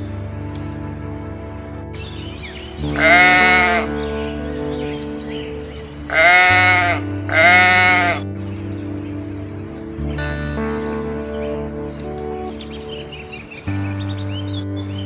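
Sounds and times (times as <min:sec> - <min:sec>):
background music: 0:00.0 - 0:15.0
loud bleats: 0:02.9 - 0:04.0, 0:06.1 - 0:08.2.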